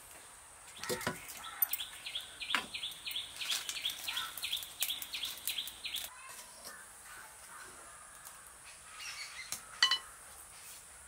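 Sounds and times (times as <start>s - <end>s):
small bird chirping: 0.7s - 6.8s.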